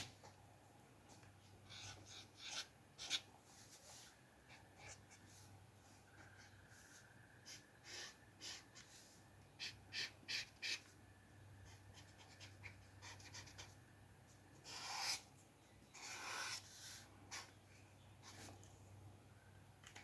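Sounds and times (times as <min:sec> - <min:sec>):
pencil scratching on paper: 0:01.7 - 0:05.5, 0:09.6 - 0:10.9, 0:11.6 - 0:13.8, 0:14.6 - 0:15.2, 0:15.9 - 0:17.5.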